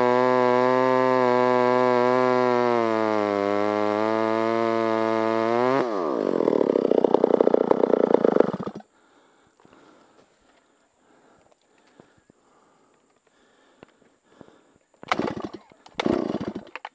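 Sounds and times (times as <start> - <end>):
chainsaw running at high revs: 0.0 - 8.9, 15.0 - 16.9.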